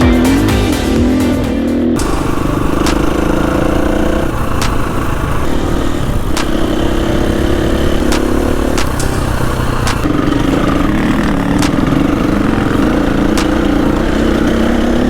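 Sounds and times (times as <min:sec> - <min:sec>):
motorcycle engine running: 0:00.0 - 0:15.0
sharp clicks: 0:02.0 - 0:05.4, 0:06.3 - 0:06.8, 0:08.0 - 0:10.1, 0:11.6 - 0:14.5.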